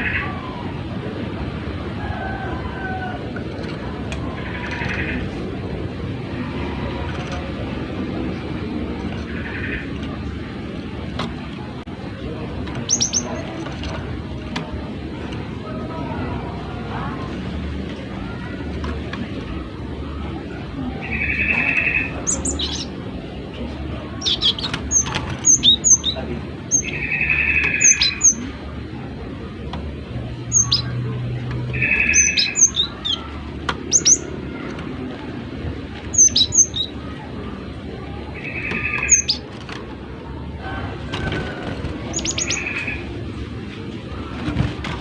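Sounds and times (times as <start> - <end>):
bird sharp high chirps: 31.8 - 33.3, 36.1 - 37.0.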